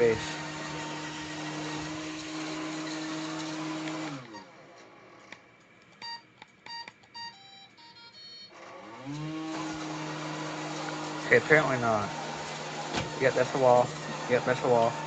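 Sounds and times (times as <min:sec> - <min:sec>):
robot vacuum motors humming: 0:00.0 - 0:05.5, 0:08.2 - 0:15.0
short electronic beeps: 0:06.0 - 0:08.5.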